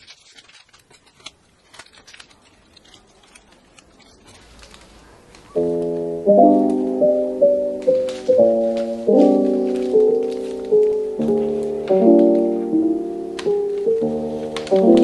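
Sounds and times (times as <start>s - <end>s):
cards in plastic sleeves rustling: 0.0s - 15.0s
electric piano music: 5.4s - 15.0s.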